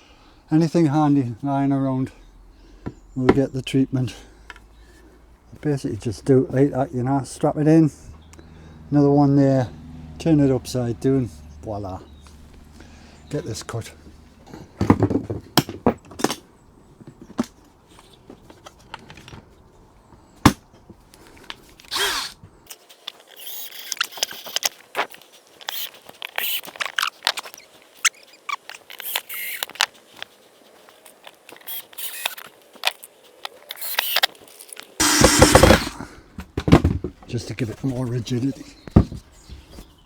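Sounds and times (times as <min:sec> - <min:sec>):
wood knocking and clattering: 0:14.8 - 0:16.4, 0:35.0 - 0:37.3, 0:38.9 - 0:39.3
hand saw rasping: 0:21.9 - 0:22.4, 0:35.0 - 0:36.1.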